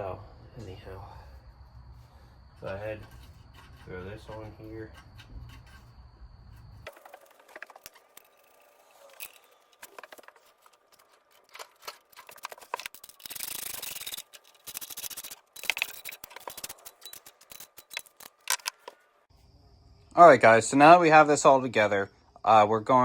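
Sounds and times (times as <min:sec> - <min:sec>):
metal rasp: 0:02.5 - 0:18.2
metallic clicks and knocks: 0:09.2 - 0:19.0.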